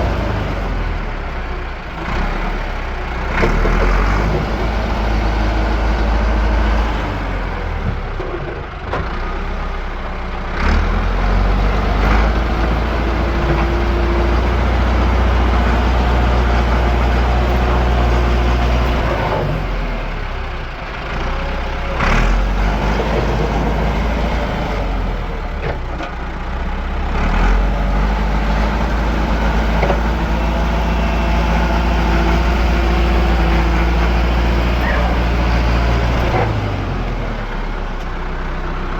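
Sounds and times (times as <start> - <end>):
engine rumbling: 0.0 - 38.9.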